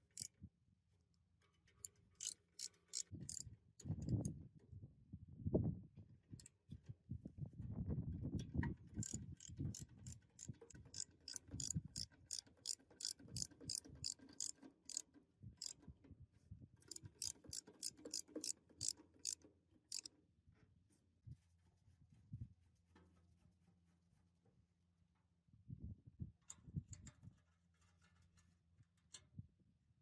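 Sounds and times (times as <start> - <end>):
ratchet wrench clicking: 0.0 - 0.3, 2.2 - 3.4, 9.0 - 15.8, 16.8 - 20.1.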